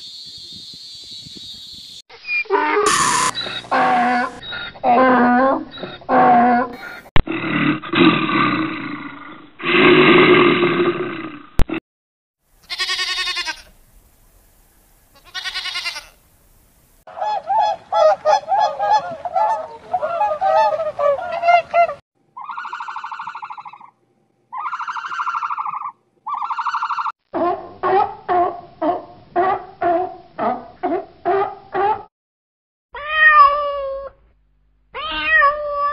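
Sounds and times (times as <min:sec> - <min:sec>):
short high animal cries: 0:02.5 - 0:04.3, 0:12.7 - 0:13.7, 0:15.2 - 0:16.2
rough noisy animal call: 0:22.4 - 0:28.0.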